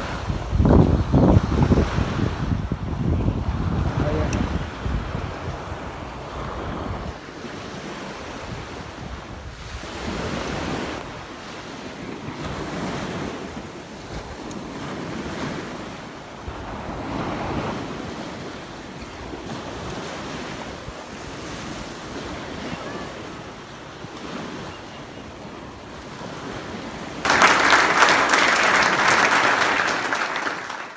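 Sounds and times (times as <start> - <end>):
wind buffeting microphone: 0.0 - 22.7
surf washing onto beach: 0.0 - 30.9
applause: 27.2 - 30.9.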